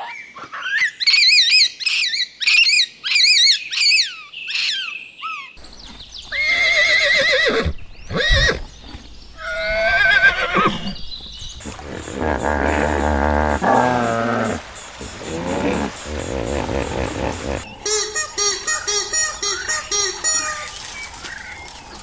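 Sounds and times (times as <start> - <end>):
horses whinnying: 6.3 - 11.0, 11.6 - 17.7.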